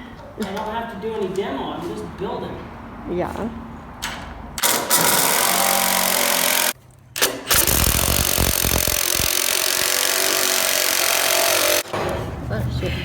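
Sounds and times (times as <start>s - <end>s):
power tool working wood: 5.0s - 6.8s, 7.6s - 11.8s.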